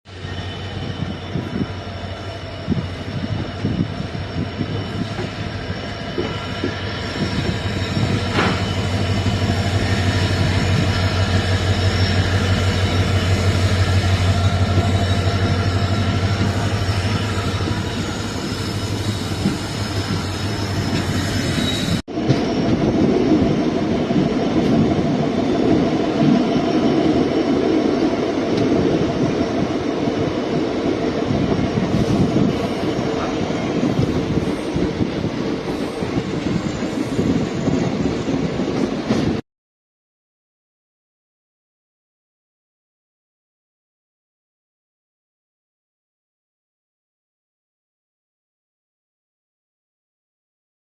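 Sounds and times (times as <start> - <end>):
locomotive hum: 0.1 - 39.4
wheel and track rumble: 2.4 - 39.4.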